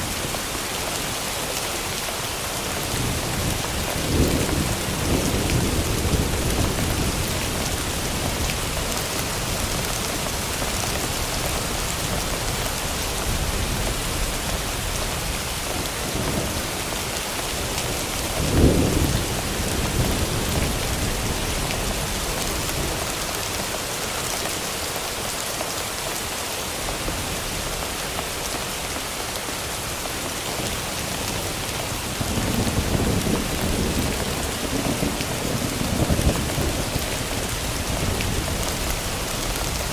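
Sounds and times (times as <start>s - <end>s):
steady rain: 0.0s - 39.9s
low thunder rumbles: 2.8s - 12.6s, 13.2s - 23.2s, 30.6s - 39.9s
sharp thunderclap: 18.2s - 21.4s.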